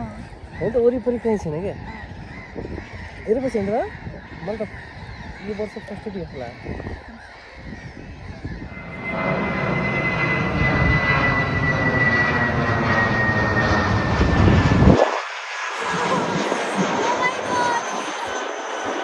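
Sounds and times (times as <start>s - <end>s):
aircraft flying over: 0.0s - 19.0s
high engine whine: 8.4s - 19.0s.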